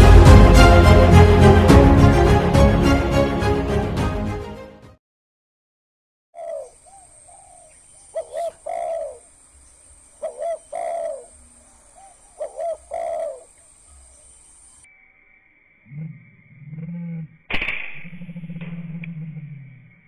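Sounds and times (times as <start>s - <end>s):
dove cooing: 6.4s - 9.4s, 10.2s - 14.2s.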